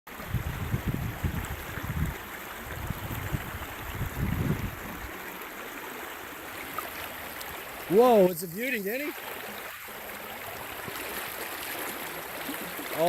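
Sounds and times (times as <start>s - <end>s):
wind buffeting microphone: 0.1s - 5.3s
stream water rushing: 0.1s - 13.0s.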